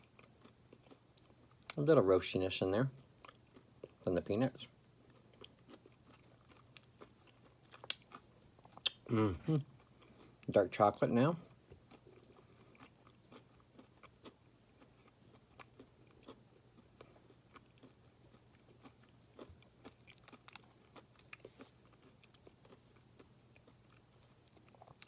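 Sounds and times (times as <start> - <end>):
close-up chewing: 0.0 - 1.8, 5.0 - 10.5, 11.4 - 25.0
faint steady hum: 0.0 - 25.0.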